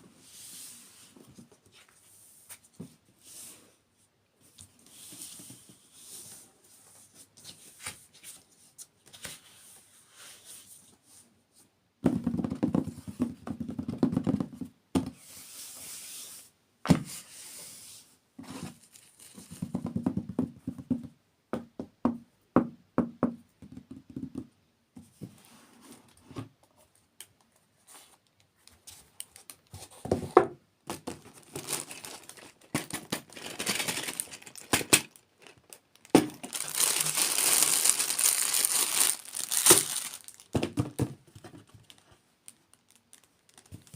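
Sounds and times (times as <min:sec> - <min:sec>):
packaging crinkling and tearing: 0:31.0 - 0:40.6, 0:41.7 - 0:43.9.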